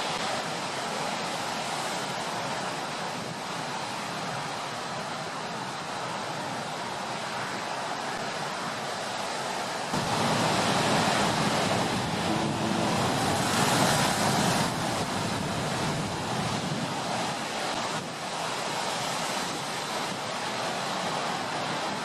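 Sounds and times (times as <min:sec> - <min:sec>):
storm waves breaking: 0:05.6 - 0:22.0.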